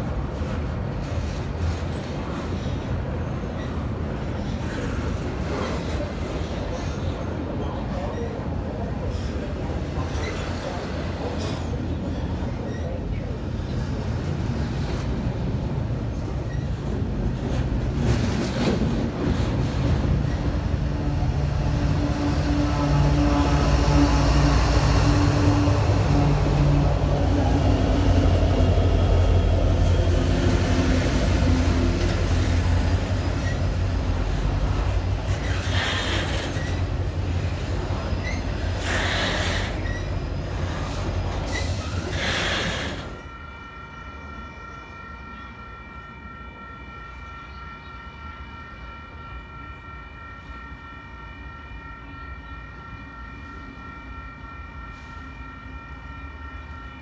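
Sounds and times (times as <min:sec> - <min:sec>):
locomotive engine rumble: 0:00.0 - 0:43.3.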